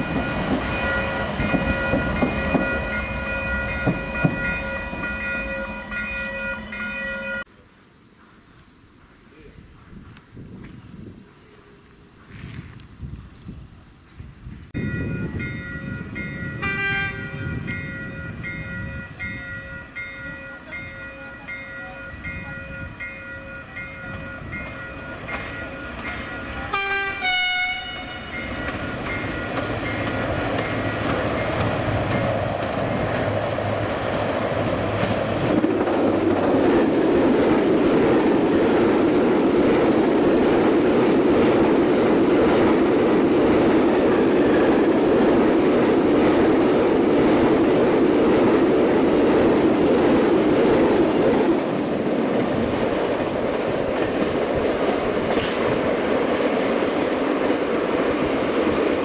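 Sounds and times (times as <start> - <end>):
locomotive engine passing: 0.0 - 7.5, 14.8 - 59.0
train wagons rumbling and clattering: 0.0 - 7.5, 14.5 - 59.0
locomotive horn blast: 16.6 - 17.5, 26.6 - 28.5.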